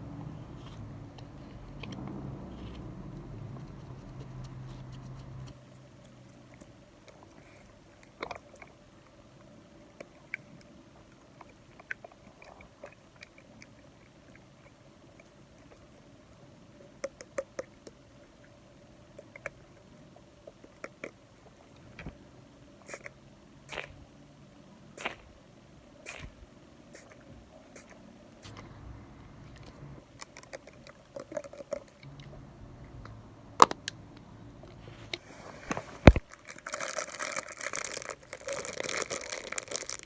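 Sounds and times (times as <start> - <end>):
low hum: 0.0 - 5.5, 28.4 - 30.0, 32.1 - 36.2.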